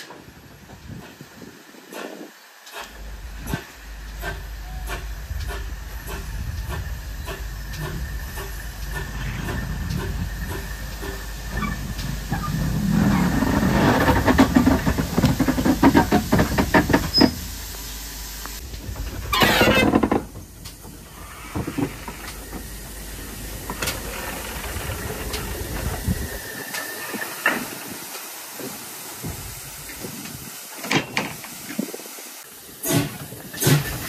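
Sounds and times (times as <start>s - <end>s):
burst of steam hiss: 0.0s - 34.0s
locomotive running noise: 0.0s - 34.0s
steam locomotive exhaust beats: 0.0s - 34.0s
locomotive knocks: 3.4s - 17.6s.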